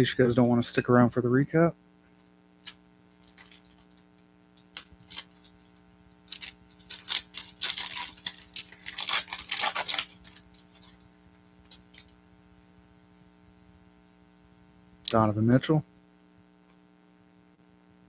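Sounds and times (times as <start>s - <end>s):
faint electrical hum: 0.0s - 18.0s
card pack crinkling and tearing: 2.6s - 4.0s, 4.6s - 5.7s, 6.3s - 11.1s, 11.7s - 12.2s.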